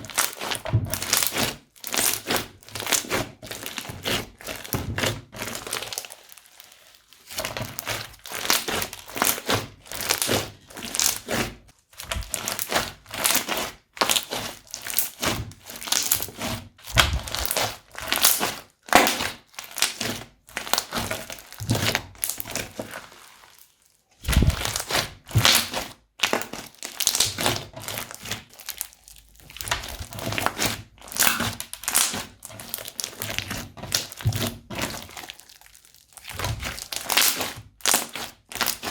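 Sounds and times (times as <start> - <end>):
slime crackling and popping: 0.0 - 38.9.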